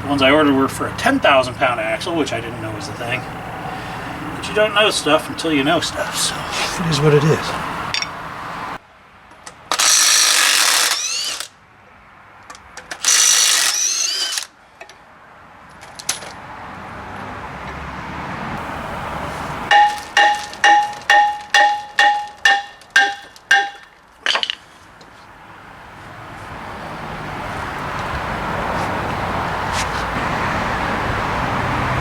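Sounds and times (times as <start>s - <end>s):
power tool whining: 9.7s - 11.5s, 13.0s - 14.5s
hammer blows on metal: 19.7s - 23.9s.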